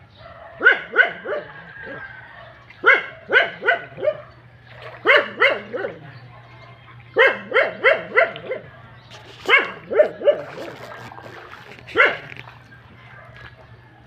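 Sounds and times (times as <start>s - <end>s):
dog barking: 0.1s - 11.1s, 11.9s - 13.8s.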